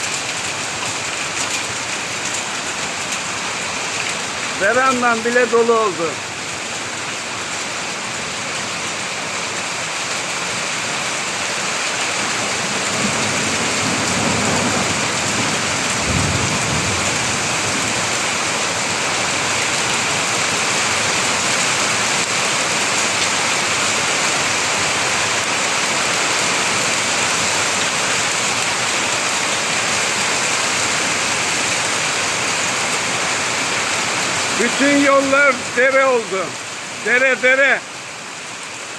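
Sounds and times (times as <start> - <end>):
rain and hail beating: 0.0 - 38.9
thunder rumble: 13.0 - 17.7.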